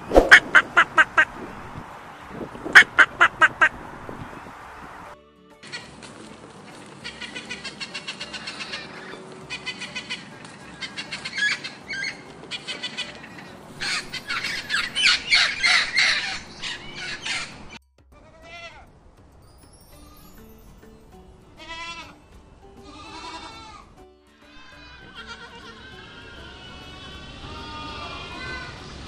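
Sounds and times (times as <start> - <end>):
macaw squawking: 0.2 - 1.6, 2.7 - 3.8, 7.0 - 17.8, 24.4 - 28.8
short bleat-like call: 22.8 - 28.8.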